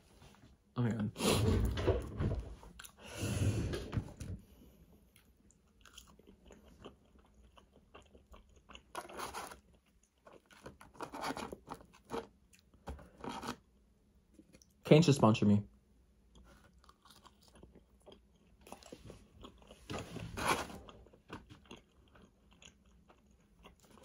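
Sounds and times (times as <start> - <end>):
person biting and chewing food: 5.1 - 13.6, 16.3 - 24.0.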